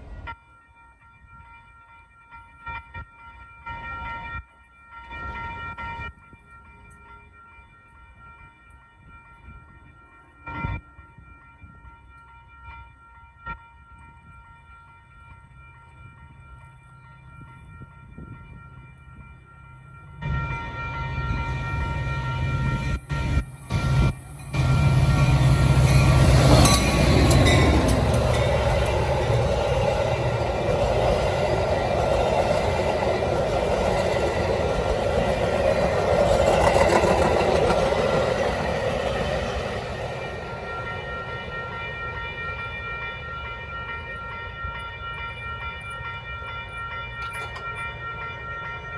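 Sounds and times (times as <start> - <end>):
diesel locomotive engine rumble: 20.2 - 43.4
train rolling past: 20.2 - 44.4.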